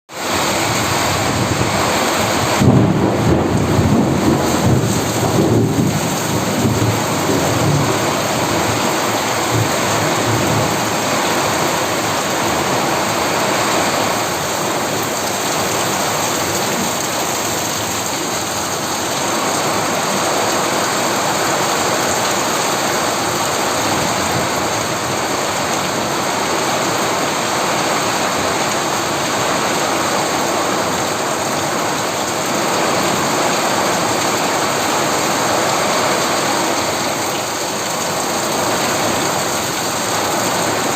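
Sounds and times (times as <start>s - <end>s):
heavy rain falling: 0.1s - 40.9s
thunder rumbling: 0.4s - 18.1s.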